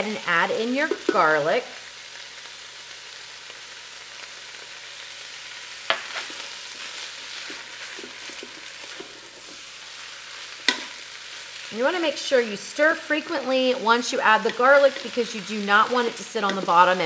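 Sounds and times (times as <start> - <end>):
meat and onion sizzling: 0.0 - 17.0
wooden spoon scraping a pot: 5.9 - 9.7.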